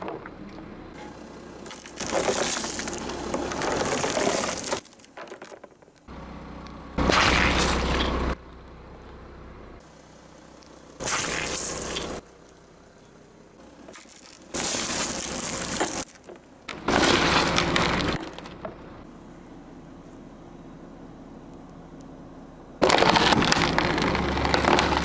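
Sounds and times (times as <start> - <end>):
car tyre crushing objects: 0.0 - 6.2, 7.0 - 8.4, 10.4 - 19.1, 22.8 - 25.0.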